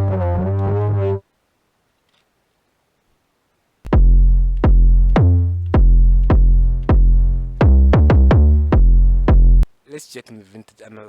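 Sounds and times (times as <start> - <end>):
deep synth bass notes: 0.0 - 1.2, 3.9 - 9.6.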